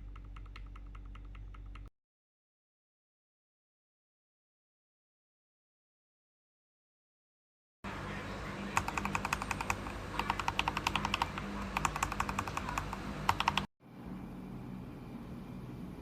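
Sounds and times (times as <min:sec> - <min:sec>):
mechanical keyboard typing: 0:00.0 - 0:01.9, 0:08.8 - 0:13.7.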